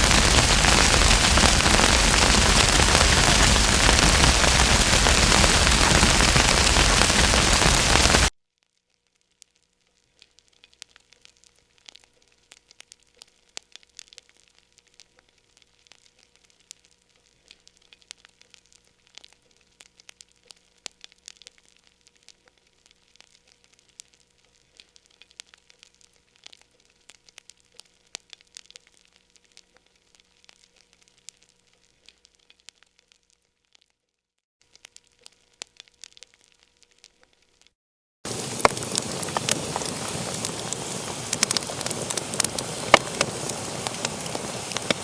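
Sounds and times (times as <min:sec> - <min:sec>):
wood fire crackling: 0:00.0 - 0:08.3, 0:38.3 - 0:45.0.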